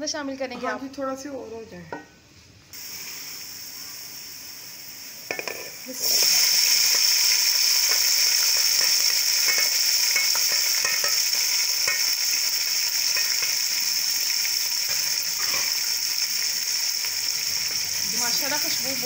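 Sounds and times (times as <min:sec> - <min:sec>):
vegetables sizzling in hot oil: 0:02.8 - 0:19.0
spoon stirring with clicks: 0:08.6 - 0:11.2.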